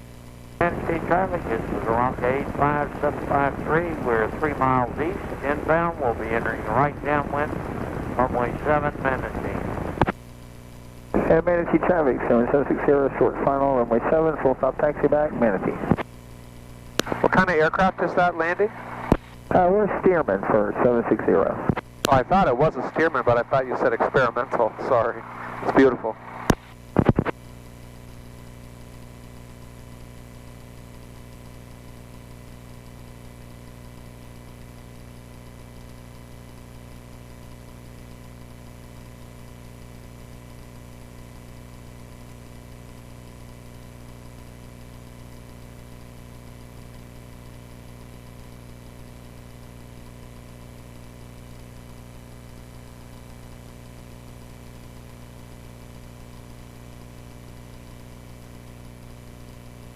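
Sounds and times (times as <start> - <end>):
small plane engine idling: 0.6 - 10.0.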